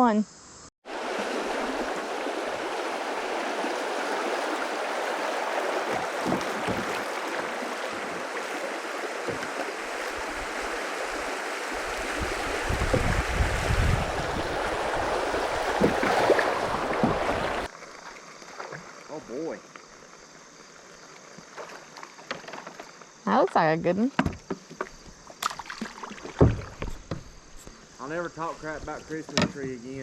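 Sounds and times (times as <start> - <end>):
river water rushing: 0.9 - 17.7.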